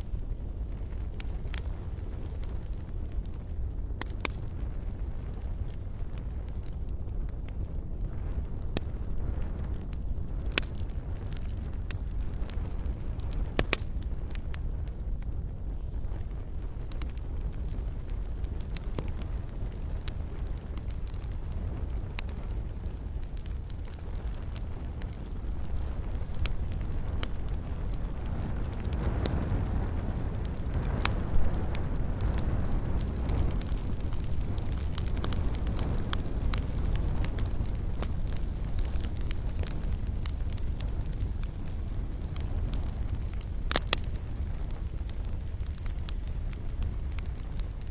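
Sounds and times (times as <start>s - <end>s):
low rumble of flames: 0.0s - 47.9s
wood fire crackling: 0.0s - 47.9s.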